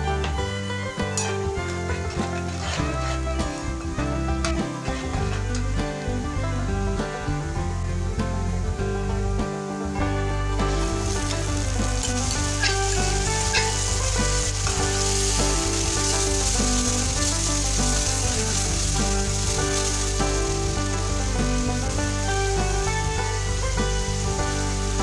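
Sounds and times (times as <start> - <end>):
paste sizzling in hot oil: 0.0 - 25.0
ladle stirring in a wok: 0.9 - 5.7, 10.6 - 25.0.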